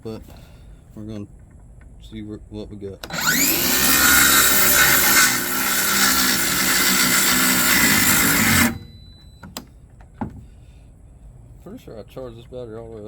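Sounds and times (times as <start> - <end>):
power saw cutting wood: 3.0 - 9.0.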